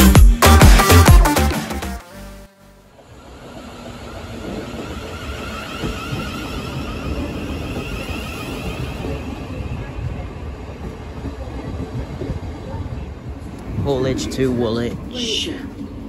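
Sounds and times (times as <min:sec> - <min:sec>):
train high whine: 0:02.1 - 0:16.0
train wheels rumbling on rail: 0:02.9 - 0:16.0.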